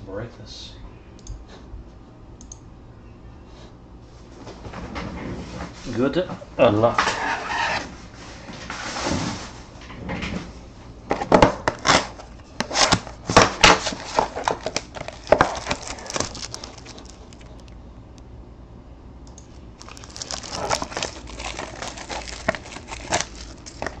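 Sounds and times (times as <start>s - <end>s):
wrapping rustling and crinkling: 11.7s - 17.8s, 19.8s - 24.0s.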